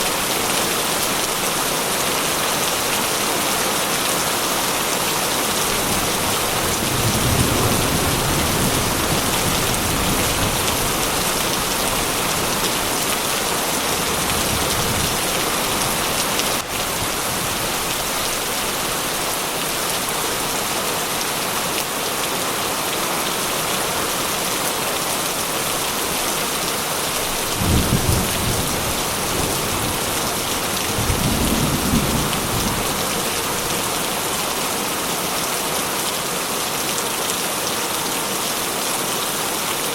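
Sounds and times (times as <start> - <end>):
heavy rain falling: 0.0 - 39.9
low thunder rumbles: 5.8 - 13.0, 27.4 - 33.2.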